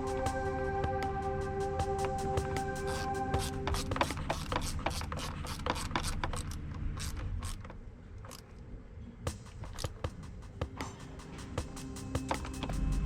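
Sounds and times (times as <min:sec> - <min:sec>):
rapid mechanical clicking: 0:02.9 - 0:08.7, 0:09.3 - 0:10.8.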